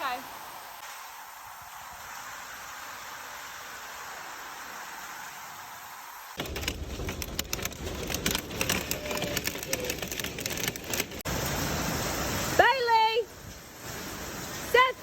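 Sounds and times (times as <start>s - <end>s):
sharp cracks and clatters: 6.4s - 11.3s.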